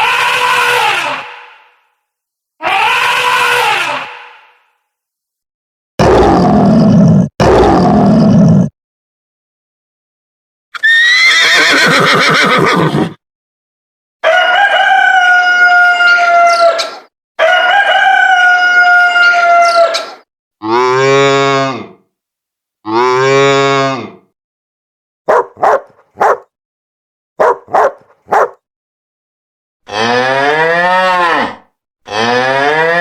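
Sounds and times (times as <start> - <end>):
long high animal calls: 0.0 - 1.6, 2.6 - 4.6, 10.8 - 13.0
cattle mooing: 29.9 - 33.0.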